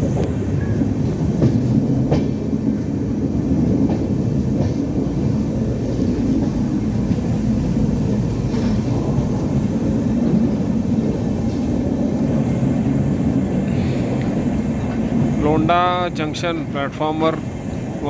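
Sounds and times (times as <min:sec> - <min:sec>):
train rumbling along track: 0:00.0 - 0:18.0.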